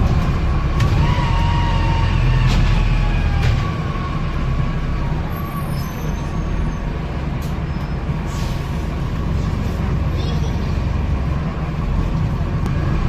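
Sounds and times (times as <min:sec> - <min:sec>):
diesel bus engine droning: 0:00.0 - 0:13.0.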